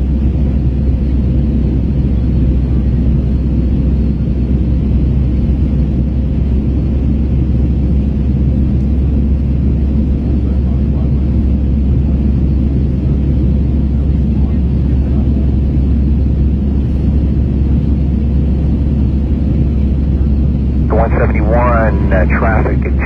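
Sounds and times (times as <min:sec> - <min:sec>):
jet engines rumbling in cabin: 0:00.0 - 0:23.0
faint steady hum: 0:20.9 - 0:23.0.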